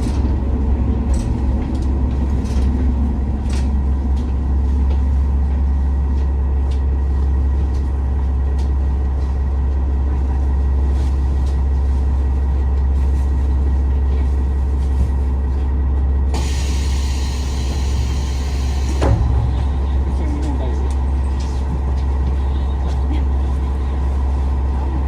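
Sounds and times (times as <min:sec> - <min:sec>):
diesel engine drone: 0:00.0 - 0:25.0
air hissing: 0:16.4 - 0:19.3.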